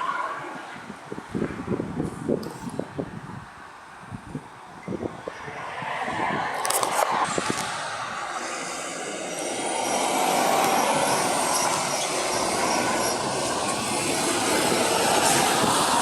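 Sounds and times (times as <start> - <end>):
heavy truck rumble: 5.8 - 16.0
faint high whine: 7.2 - 16.0.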